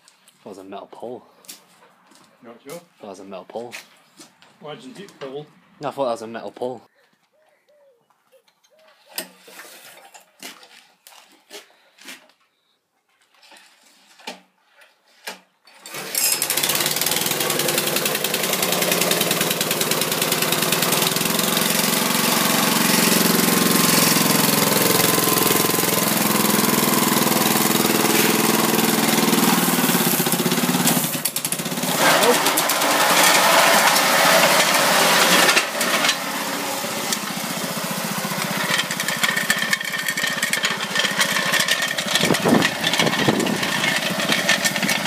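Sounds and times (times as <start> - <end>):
lawn mower engine running: 15.7 - 45.0.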